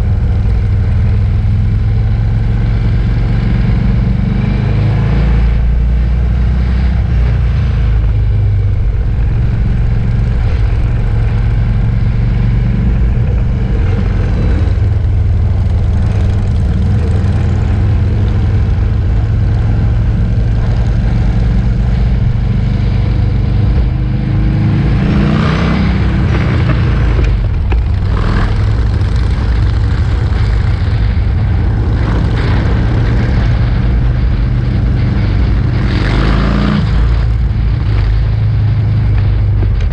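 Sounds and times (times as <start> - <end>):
motorcycle engine revving: 0.0 - 39.9
motorcycles riding past: 8.6 - 38.4.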